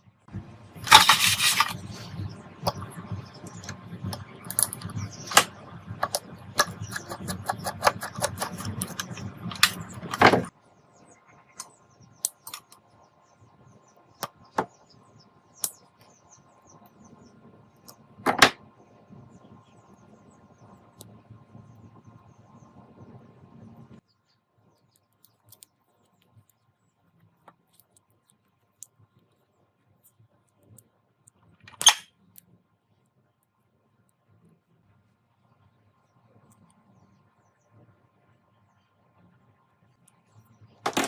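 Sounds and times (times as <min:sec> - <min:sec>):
rough scrape: 0:00.8 - 0:02.0.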